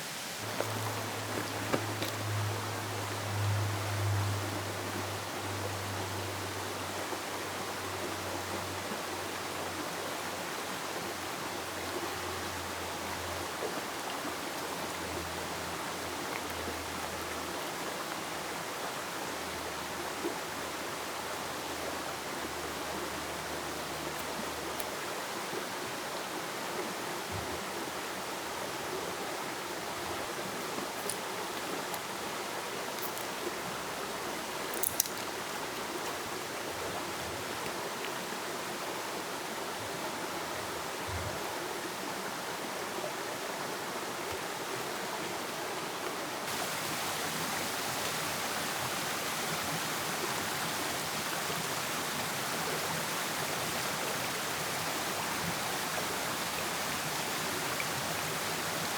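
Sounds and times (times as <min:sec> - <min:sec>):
rushing outdoor ambience: 0:00.0 - 0:09.9, 0:43.7 - 0:58.9.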